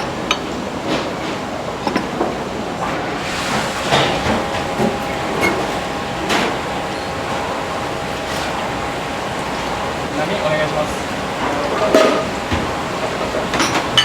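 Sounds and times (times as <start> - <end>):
dishes clinking and clattering: 0.0 - 2.4, 11.4 - 14.0.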